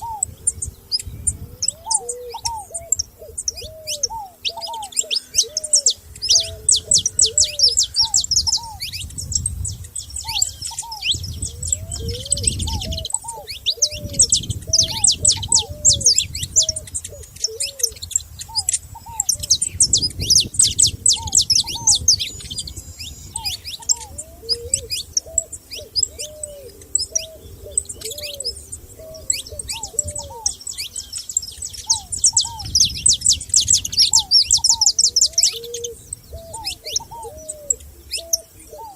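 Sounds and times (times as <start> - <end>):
low-pitched bird notes: 0.0 - 38.9
songbirds chirping and trilling: 0.0 - 38.9.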